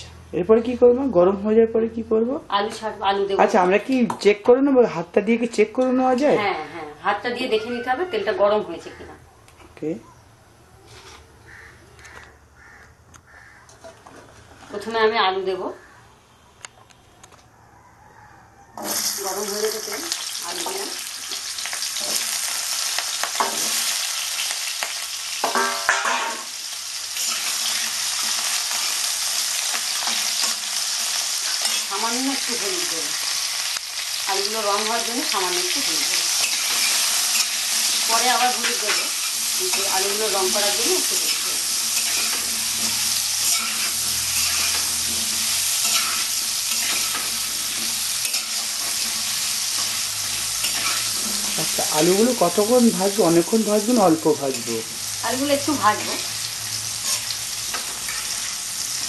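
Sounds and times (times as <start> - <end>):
potatoes sizzling in oil: 18.8 - 59.0
steel spatula stirring in wok: 36.2 - 52.6.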